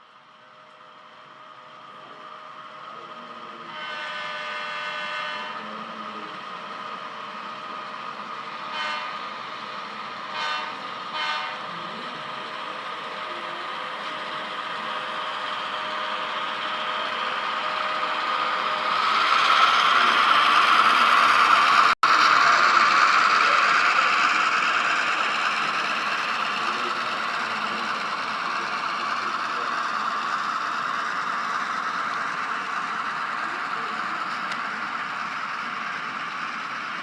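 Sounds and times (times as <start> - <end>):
diesel engine sound: 0.0 - 37.0
model locomotive horn: 3.7 - 5.7, 8.7 - 9.2, 10.3 - 11.7.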